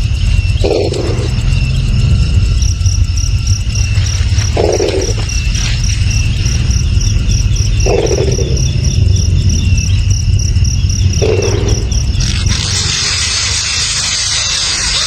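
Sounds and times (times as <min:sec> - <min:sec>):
constant low rumble: 0:00.0 - 0:15.0
high-pitched insect trilling: 0:00.0 - 0:15.0
hiss: 0:12.2 - 0:15.0.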